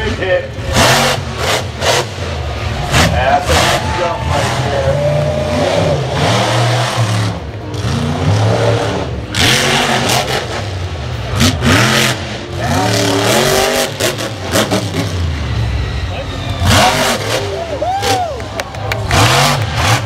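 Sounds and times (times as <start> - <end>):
loud rushes of noise: 0.0 - 20.0
truck engine revving: 0.0 - 20.0.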